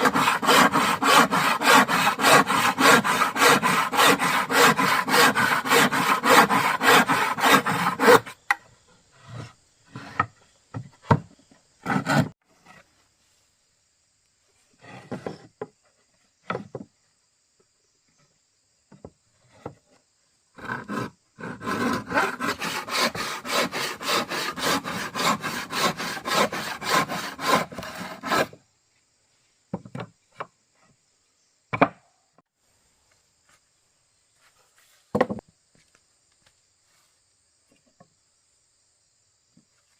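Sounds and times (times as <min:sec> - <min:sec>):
hand tool strokes on wood: 0:00.0 - 0:08.4, 0:11.8 - 0:13.0, 0:20.6 - 0:28.6.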